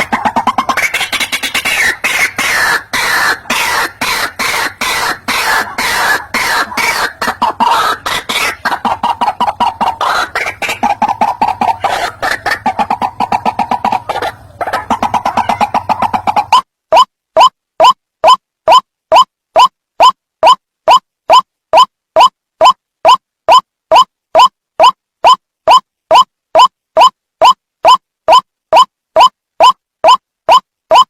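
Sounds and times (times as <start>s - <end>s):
waterhen calling: 0.0s - 17.1s.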